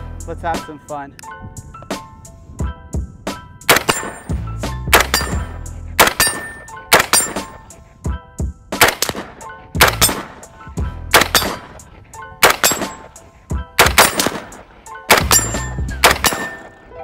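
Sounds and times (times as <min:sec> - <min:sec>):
background music: 0:00.0 - 0:17.0
rifle shots: 0:03.7 - 0:07.7, 0:08.8 - 0:13.2, 0:13.8 - 0:16.8.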